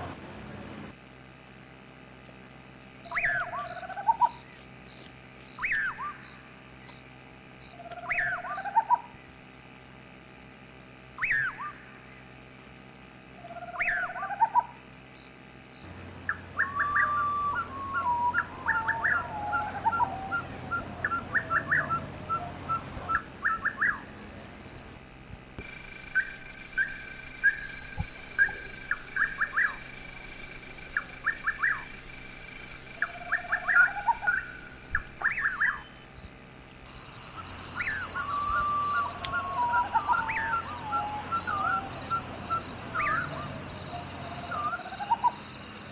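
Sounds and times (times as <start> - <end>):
birds chirping and trilling: 15.9 - 24.3, 25.6 - 29.9, 31.0 - 32.0, 32.9 - 36.3, 37.0 - 45.4.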